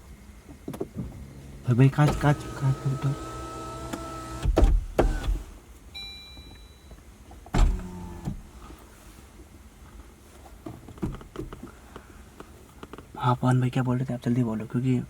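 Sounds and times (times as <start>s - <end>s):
power window motor whining: 1.2s - 5.6s, 7.6s - 8.5s
loud thump: 7.6s - 7.9s.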